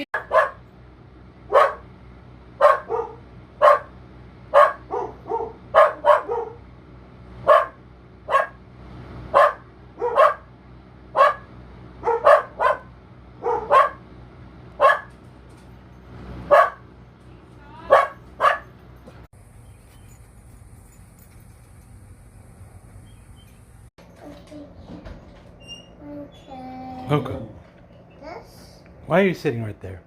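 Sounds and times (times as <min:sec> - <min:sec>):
puppy barking: 0:00.2 - 0:00.7, 0:01.5 - 0:01.9, 0:02.6 - 0:06.7, 0:07.4 - 0:08.6, 0:09.3 - 0:10.5, 0:11.1 - 0:14.0, 0:14.8 - 0:15.2, 0:16.5 - 0:16.9, 0:17.8 - 0:18.8.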